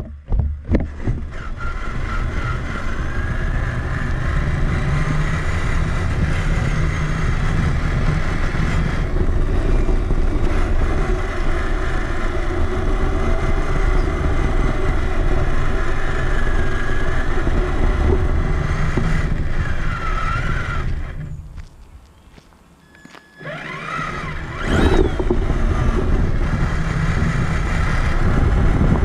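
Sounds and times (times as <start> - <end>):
chassis vibration rumble: 0.0 - 29.0
electric motor and gear whine: 0.0 - 29.0.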